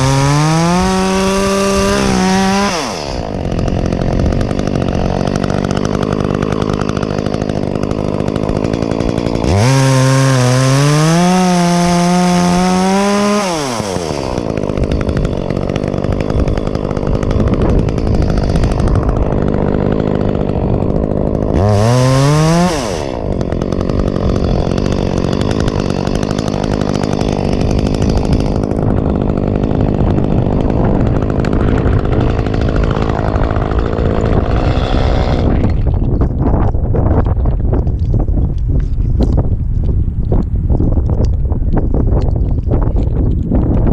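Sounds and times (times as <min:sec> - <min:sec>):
chainsaw revving: 0:00.0 - 0:36.4.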